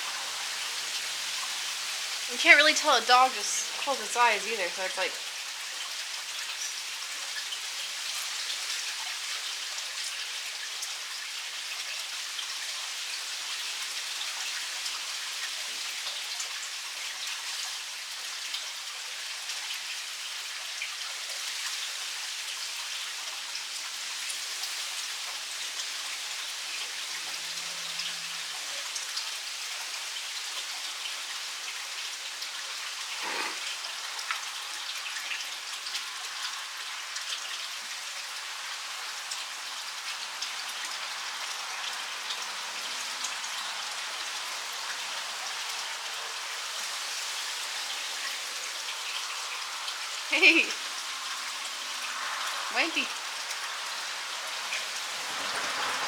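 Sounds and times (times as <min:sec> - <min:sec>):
crackling hiss: 0:32.8 - 0:37.4.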